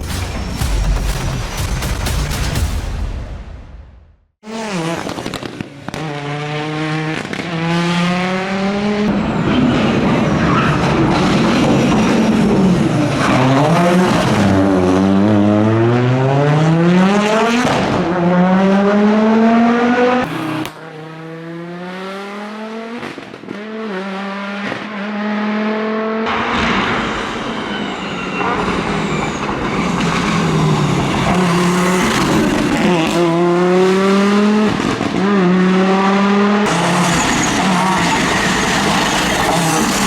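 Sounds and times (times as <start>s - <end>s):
rally car engine at full throttle: 4.4s - 40.0s
loud rush of noise: 26.3s - 34.2s.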